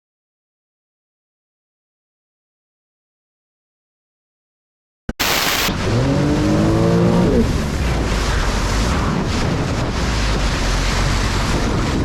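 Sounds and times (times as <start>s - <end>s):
rushing water: 5.1s - 12.0s
jet ski engine revving: 5.2s - 12.0s
wind noise on microphone: 5.2s - 12.0s.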